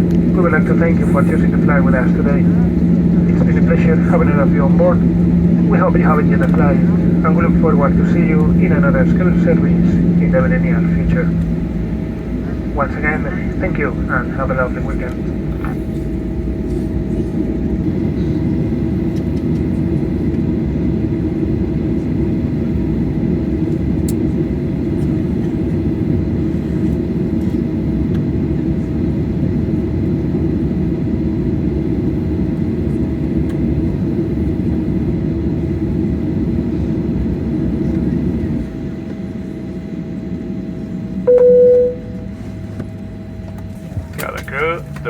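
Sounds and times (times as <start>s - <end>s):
faint whine: 0.0s - 17.2s, 41.3s - 43.3s
airliner cabin drone: 0.0s - 45.0s.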